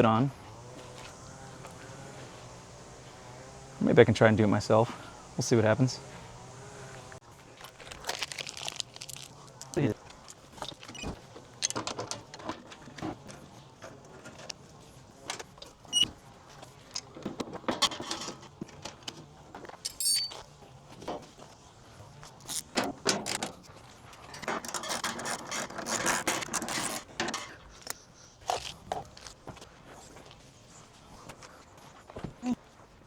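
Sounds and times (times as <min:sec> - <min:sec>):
metal parts and tools clinking: 0:07.9 - 0:13.0, 0:19.8 - 0:20.4
short metallic ring: 0:19.9 - 0:20.4.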